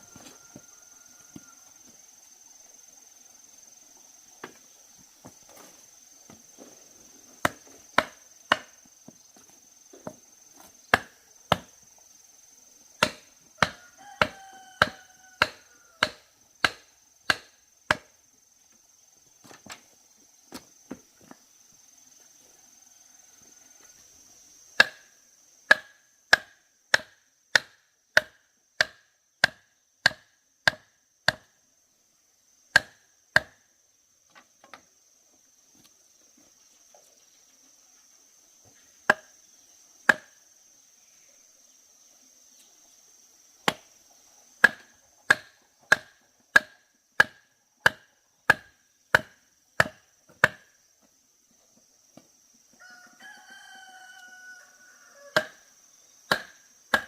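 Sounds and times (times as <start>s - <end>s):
high insect drone: 0.0s - 57.0s
blade chopping bamboo: 7.4s - 8.8s, 10.9s - 11.7s, 13.0s - 18.1s, 24.8s - 25.1s, 25.7s - 31.5s, 32.7s - 33.6s, 40.0s - 40.4s, 43.6s - 43.9s, 44.6s - 50.7s, 55.3s - 55.6s, 56.3s - 57.0s.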